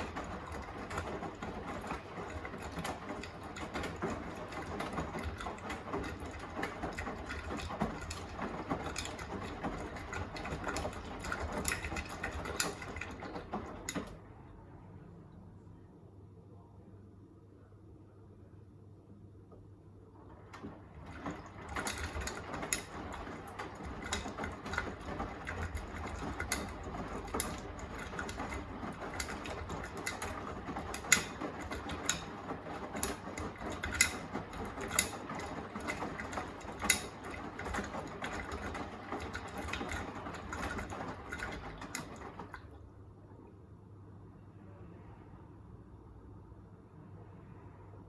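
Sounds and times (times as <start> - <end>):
washing machine drum turning: 0.0 - 14.3, 20.2 - 42.8.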